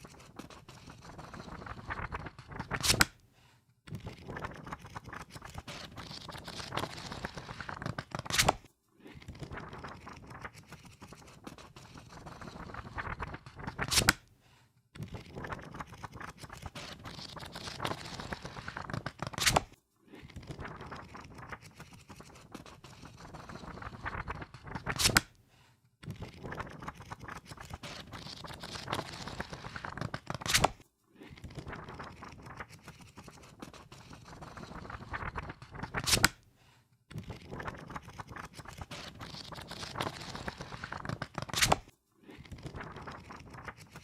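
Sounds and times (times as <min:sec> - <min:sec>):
book pages riffled: 0:00.0 - 0:03.2, 0:03.9 - 0:14.2, 0:15.0 - 0:25.3, 0:26.0 - 0:30.8, 0:31.4 - 0:36.4, 0:37.1 - 0:44.0
sharp snap of pages: 0:02.7 - 0:03.2, 0:08.2 - 0:08.7, 0:13.8 - 0:14.3, 0:19.3 - 0:19.8, 0:24.9 - 0:25.3, 0:30.3 - 0:30.8, 0:35.9 - 0:36.4, 0:41.4 - 0:41.9.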